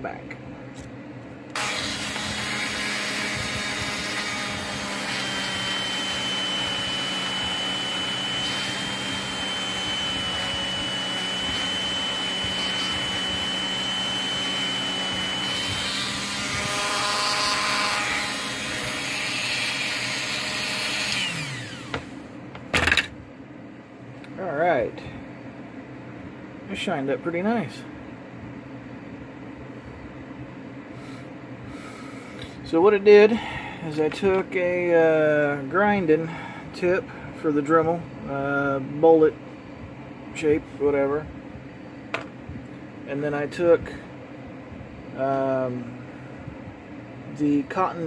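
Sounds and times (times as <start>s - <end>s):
rotary tool whine: 1.5s - 23.1s.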